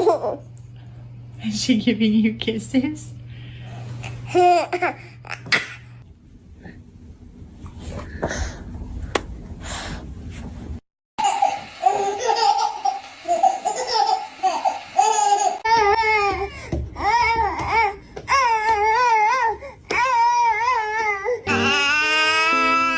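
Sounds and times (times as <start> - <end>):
baby laughing and squealing: 11.2 - 15.7.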